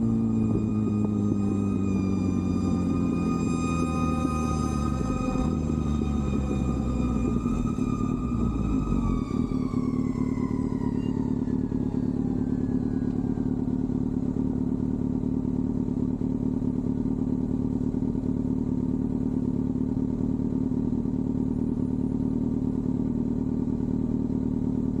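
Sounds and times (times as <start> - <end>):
high whine falling in pitch: 0.0 - 14.2
motorcycle engine running: 0.0 - 25.0.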